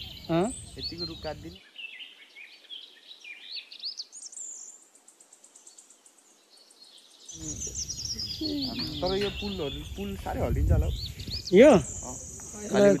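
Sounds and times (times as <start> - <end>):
high pulsed bird trill: 0.0 - 2.0, 7.3 - 13.0
birds chirping: 0.0 - 13.0
faint forest hiss: 0.0 - 13.0.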